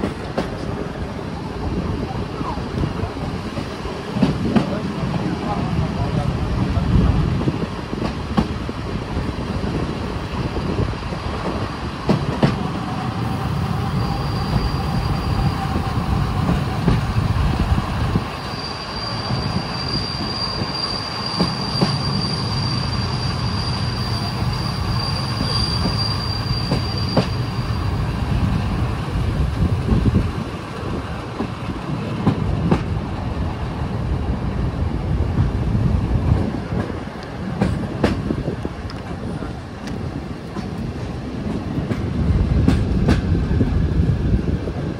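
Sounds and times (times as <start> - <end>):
train wheels rumbling on rail: 0.0 - 44.9
high wheel squeal: 12.6 - 28.2.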